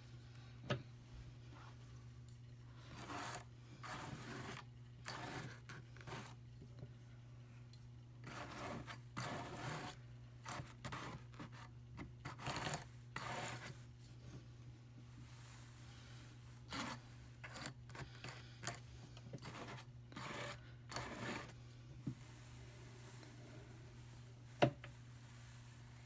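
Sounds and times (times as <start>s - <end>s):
low steady hum: 0.0s - 26.0s
drum carder rasping through wool: 2.9s - 6.4s, 8.2s - 11.4s, 19.4s - 21.6s.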